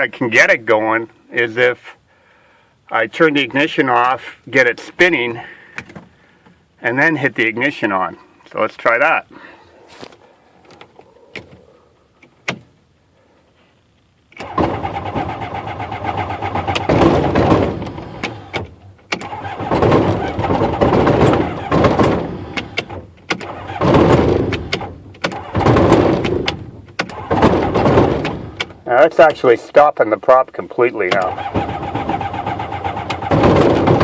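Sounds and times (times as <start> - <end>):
aircraft engine cranking: 14.3 - 29.4, 31.1 - 34.0.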